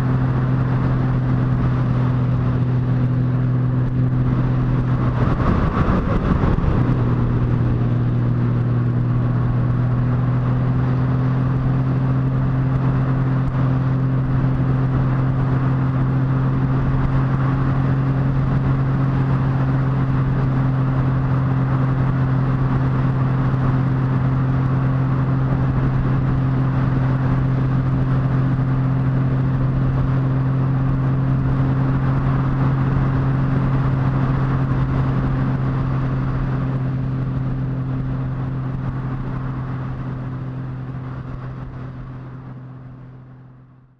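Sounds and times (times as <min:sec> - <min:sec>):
wind noise: 0:00.0 - 0:43.1
motorcycle engine droning: 0:00.0 - 0:43.9.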